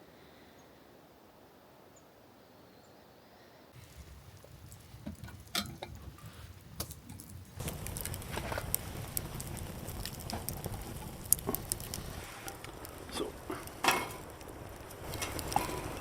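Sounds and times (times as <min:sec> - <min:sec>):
food sizzling in a pan: 0:07.6 - 0:16.0
metal cooking gear clattering: 0:12.4 - 0:16.0.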